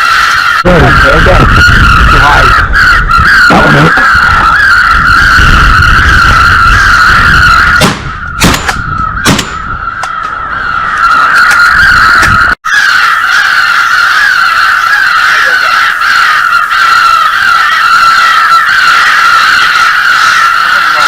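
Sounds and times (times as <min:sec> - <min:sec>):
wind buffeting microphone: 0:00.6 - 0:12.6
shotgun blasts: 0:07.8 - 0:09.7.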